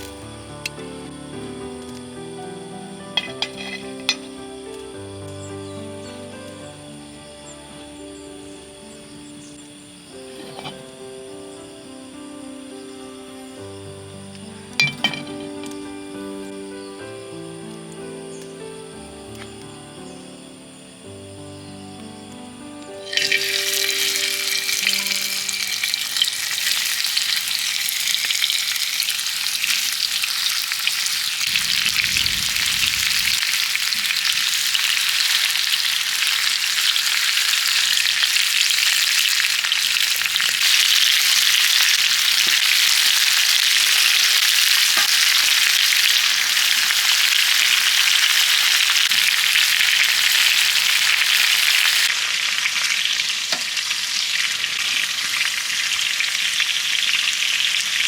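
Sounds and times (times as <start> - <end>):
food sizzling on griddle: 0.0 - 5.1, 10.0 - 11.0, 13.7 - 15.9, 23.0 - 58.0
low rumble: 31.5 - 33.5.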